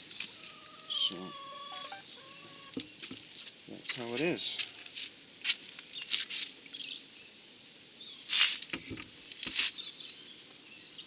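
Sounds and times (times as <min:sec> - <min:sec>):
birds chirping: 0:00.0 - 0:04.5
light scratching and rustling: 0:08.3 - 0:09.9.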